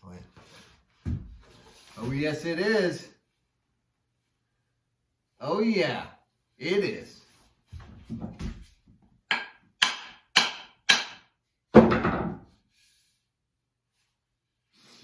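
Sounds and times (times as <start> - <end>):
sharp wooden knocks: 9.3 - 12.5.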